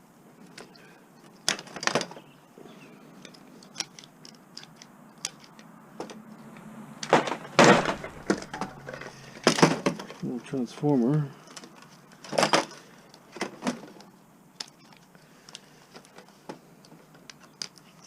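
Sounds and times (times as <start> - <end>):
metal clattering: 7.0 - 10.2.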